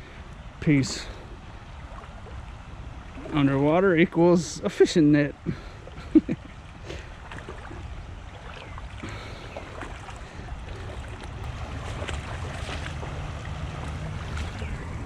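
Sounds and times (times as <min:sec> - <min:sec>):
creek water splashing and trickling: 0:00.0 - 0:15.0
wind rumble on microphone: 0:05.5 - 0:15.0.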